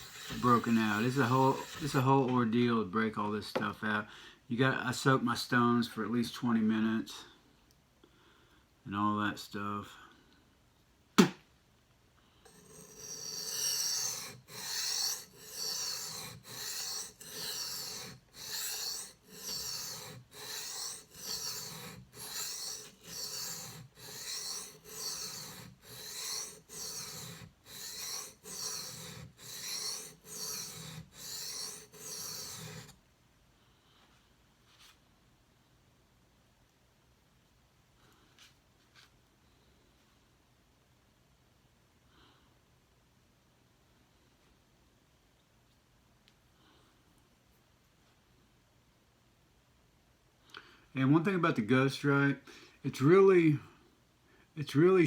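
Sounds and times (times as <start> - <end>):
knife grinding on whetstone: 0.0 - 2.1, 12.5 - 33.0.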